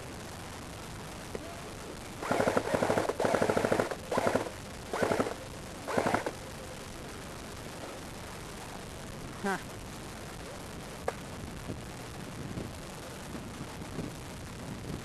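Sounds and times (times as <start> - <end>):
airsoft gun full-auto bursts: 2.2 - 6.4.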